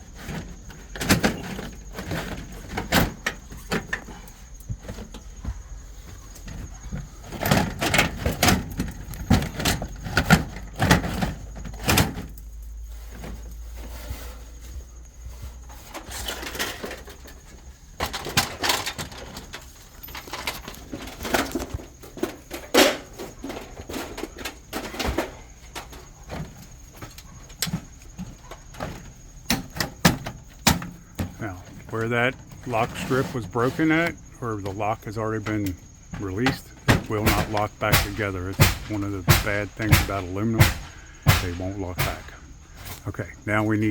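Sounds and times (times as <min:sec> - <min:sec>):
siding panels clattering: 0:00.0 - 0:43.9
hammer striking: 0:37.1 - 0:42.3.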